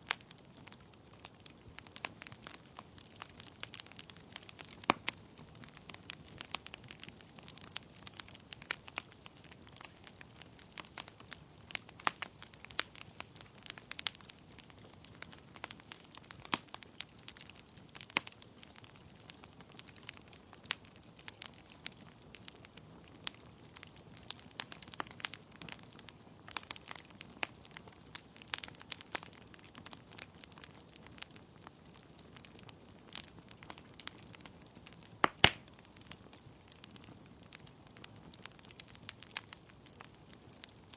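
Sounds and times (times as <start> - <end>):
logs crackling and popping: 0.0 - 40.9.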